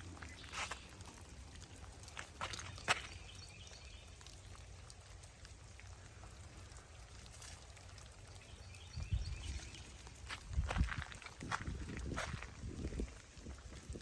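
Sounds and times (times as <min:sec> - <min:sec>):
rain dripping and pattering: 0:00.0 - 0:14.0
wind rumble on microphone: 0:08.8 - 0:14.0.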